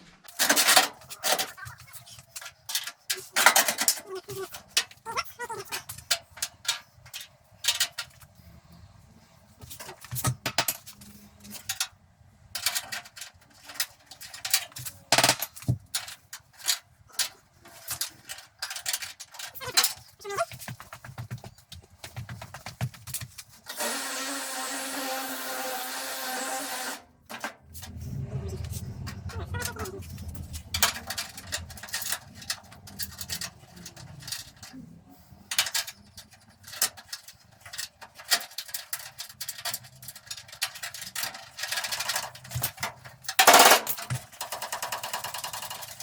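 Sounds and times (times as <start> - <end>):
low rumble: 27.8 - 32.0
metal clicks and knocks: 29.0 - 34.7, 35.5 - 46.0.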